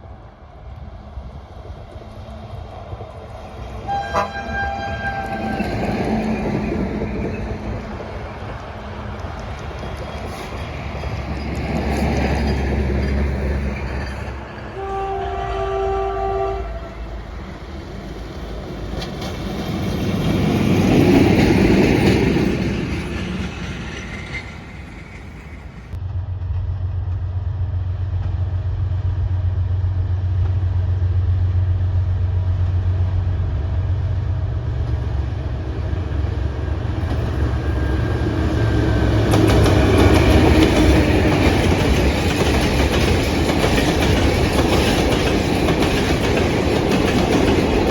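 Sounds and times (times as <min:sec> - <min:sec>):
locomotive engine humming: 0:00.0 - 0:26.0, 0:31.6 - 0:47.9
rail and wheel noise: 0:00.0 - 0:47.9
train horn chord: 0:03.8 - 0:06.4, 0:14.7 - 0:17.6.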